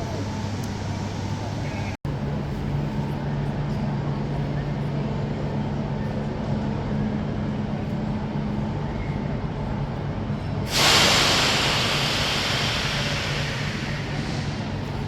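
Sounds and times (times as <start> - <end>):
train mechanical hum: 0.0 - 15.0
air brakes hissing: 10.7 - 15.0.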